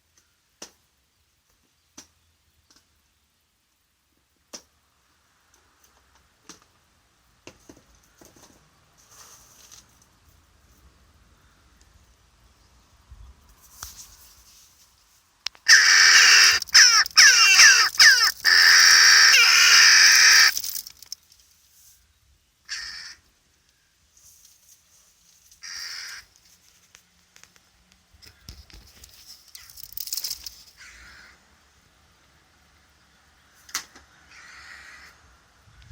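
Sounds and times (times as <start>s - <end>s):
crow nestlings calling: 15.7s - 21.1s, 22.7s - 23.2s, 25.6s - 26.3s, 30.8s - 31.4s, 34.3s - 35.2s.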